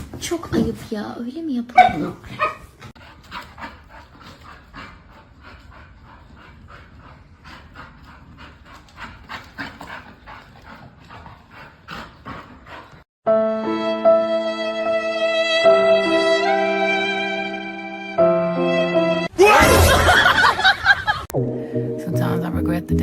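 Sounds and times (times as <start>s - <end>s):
dog panting: 2.3s - 13.1s.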